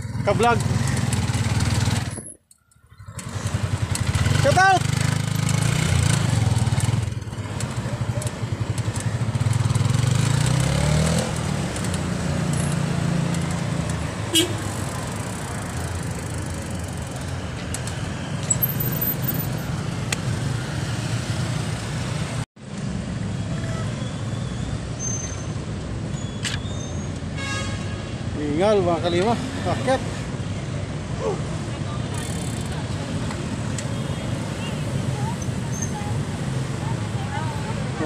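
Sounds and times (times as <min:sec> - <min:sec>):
motorcycle engine speeding up: 0:00.0 - 0:02.2, 0:02.9 - 0:18.0
traffic and road noise rumble: 0:00.0 - 0:38.0.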